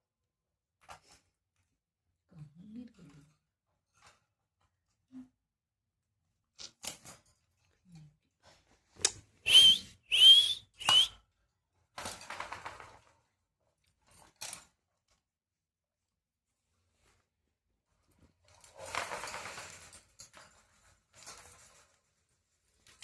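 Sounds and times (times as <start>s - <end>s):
short clicks: 9.0s - 11.1s
parrot shrill whistling calls: 9.5s - 11.1s.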